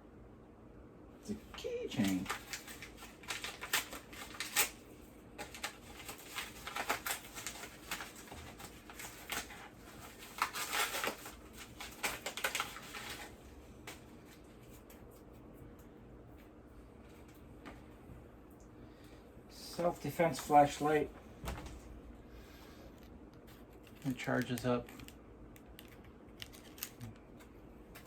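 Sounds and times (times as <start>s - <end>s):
packaging clicks and crinkles: 1.6s - 15.1s, 23.0s - 28.0s.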